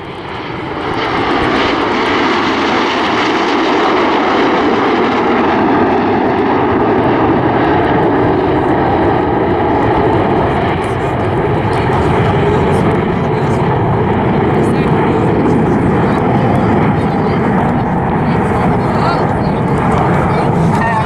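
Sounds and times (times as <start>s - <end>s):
jets flying over: 0.0s - 21.0s.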